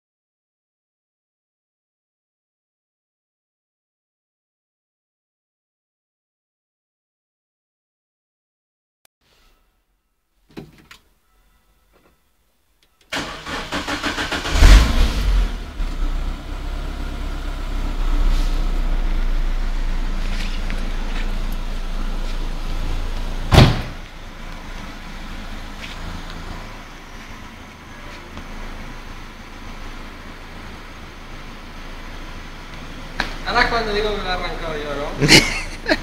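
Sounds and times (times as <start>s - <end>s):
car engine cranking: 13.1s - 24.7s
car engine revving and idling: 13.2s - 36.0s
sharp bang: 23.5s - 24.0s.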